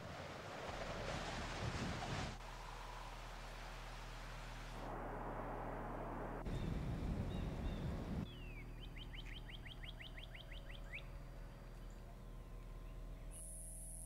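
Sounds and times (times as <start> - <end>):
steady low hum: 2.4 - 14.0
low rumble: 4.7 - 8.8.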